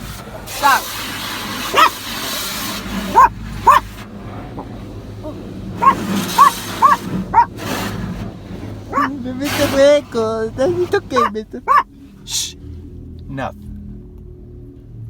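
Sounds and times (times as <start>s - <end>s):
small dog yapping: 1.7s - 2.0s, 3.1s - 3.9s, 4.6s - 7.5s, 8.9s - 9.2s, 11.0s - 11.8s.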